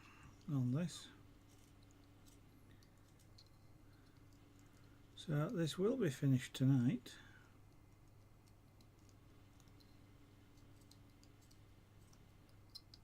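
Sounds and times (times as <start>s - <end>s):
low steady hum: 0.0s - 13.0s
faint small clicks: 7.7s - 13.0s.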